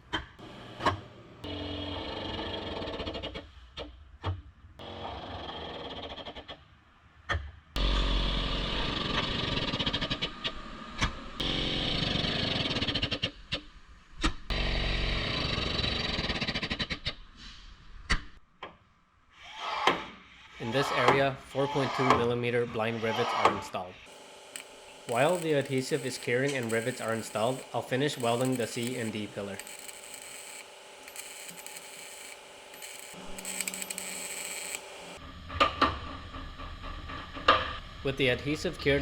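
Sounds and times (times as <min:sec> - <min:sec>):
rivet gun running: 0:24.1 - 0:35.2
sharp clicks: 0:24.1 - 0:35.2.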